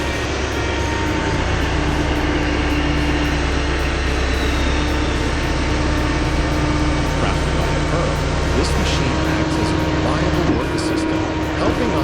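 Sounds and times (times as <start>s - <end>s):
heavy machine engine humming: 0.0s - 12.0s.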